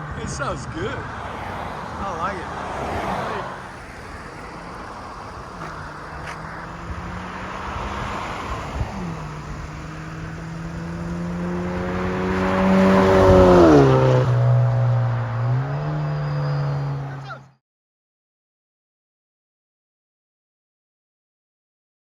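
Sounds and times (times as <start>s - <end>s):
car exhaust accelerating: 0.0s - 17.4s.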